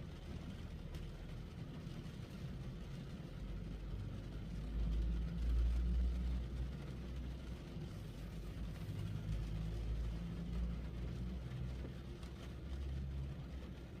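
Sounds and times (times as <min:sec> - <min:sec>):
rain falling on a car: 0:00.0 - 0:14.0.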